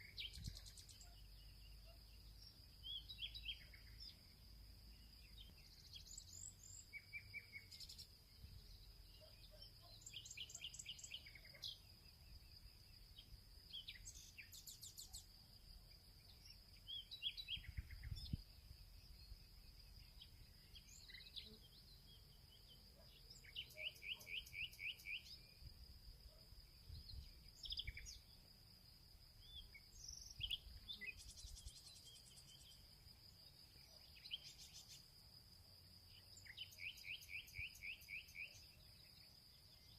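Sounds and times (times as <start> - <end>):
birds chirping and singing: 0.0 - 4.2, 5.1 - 11.9, 20.0 - 25.4, 26.9 - 28.4.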